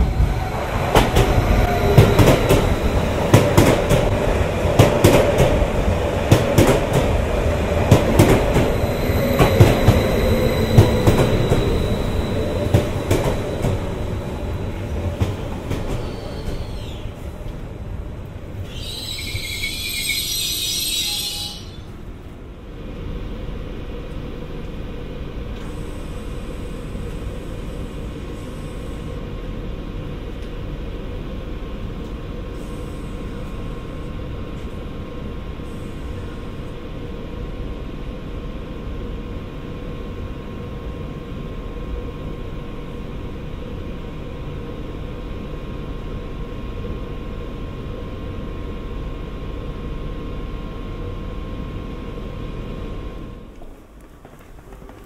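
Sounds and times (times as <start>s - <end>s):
standing train humming: 0.0s - 55.0s.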